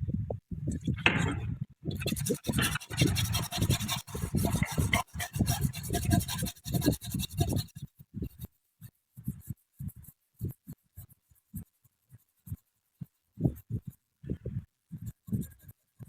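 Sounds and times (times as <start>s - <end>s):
scraping and rubbing: 0.8s - 7.8s.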